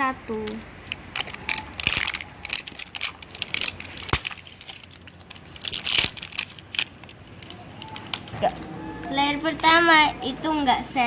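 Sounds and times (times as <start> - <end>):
crinkly packaging tearing and crumpling: 0.3 - 8.7.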